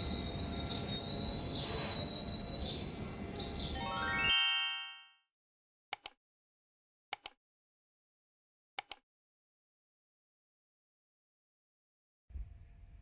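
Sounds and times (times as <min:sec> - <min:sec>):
outdoor ambience: 0:00.0 - 0:03.7
rising chime notes: 0:03.8 - 0:05.2.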